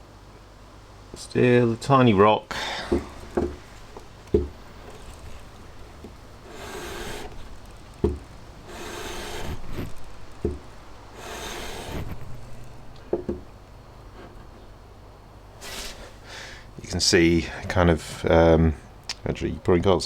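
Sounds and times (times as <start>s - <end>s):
metal rasping on sandpaper: 2.7s - 13.2s
metal knocking on flat surface: 2.9s - 3.7s, 4.3s - 4.6s, 13.1s - 13.5s.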